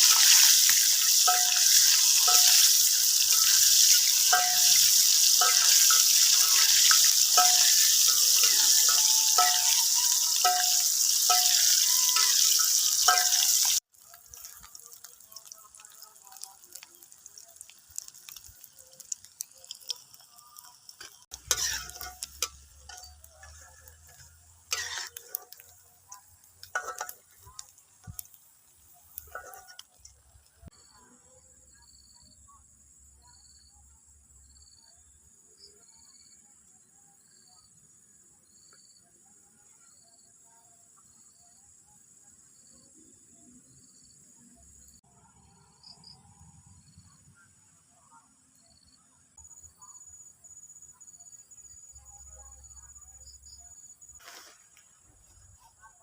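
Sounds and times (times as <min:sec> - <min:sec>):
utensil clinking in pan: 0:00.0 - 0:13.8, 0:19.5 - 0:28.3, 0:29.3 - 0:30.2
food sizzling in hot oil: 0:00.0 - 0:30.8, 0:50.8 - 0:56.0.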